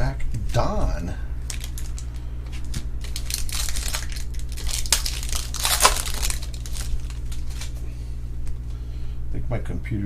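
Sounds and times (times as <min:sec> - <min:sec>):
plastic packaging crinkling: 0:01.4 - 0:07.8.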